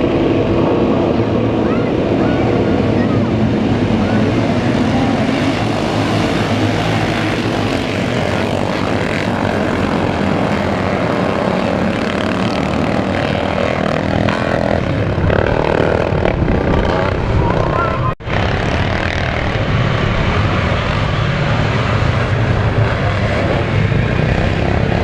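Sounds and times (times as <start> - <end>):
motocross bike engines revving: 0.0 - 25.0.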